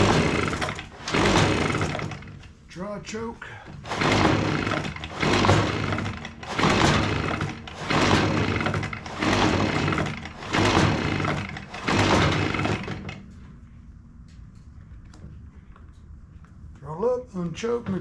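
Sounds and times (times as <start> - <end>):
recoil starter being pulled: 0.0 - 2.6, 3.6 - 13.5.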